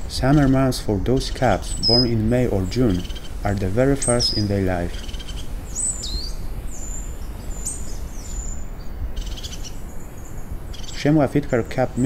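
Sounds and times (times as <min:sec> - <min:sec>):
small birds calling: 0:00.0 - 0:12.0
steady low rumble: 0:00.0 - 0:12.0.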